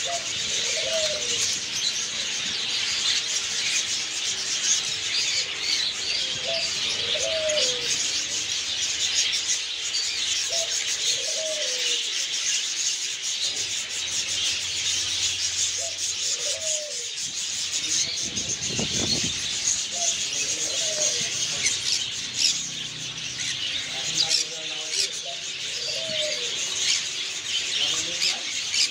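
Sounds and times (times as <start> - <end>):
low cooing call: 0.0 - 1.6, 6.2 - 8.4, 10.5 - 12.1, 15.8 - 17.1, 19.8 - 21.8, 25.0 - 27.0
caged birds chirping: 0.0 - 28.9.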